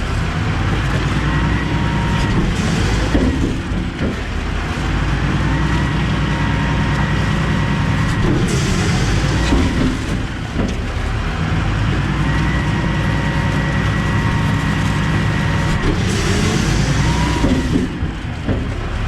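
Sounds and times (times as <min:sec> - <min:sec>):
hydraulic whine: 0:00.0 - 0:19.0
truck engine drone: 0:00.0 - 0:19.0
knocks and rattles: 0:08.0 - 0:12.1, 0:13.4 - 0:19.0
hydraulic hiss: 0:08.2 - 0:10.5, 0:14.1 - 0:18.3.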